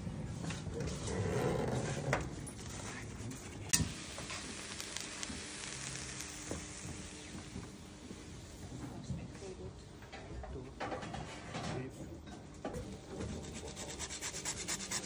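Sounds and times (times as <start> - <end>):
food sizzling in frying: 3.7 - 8.7.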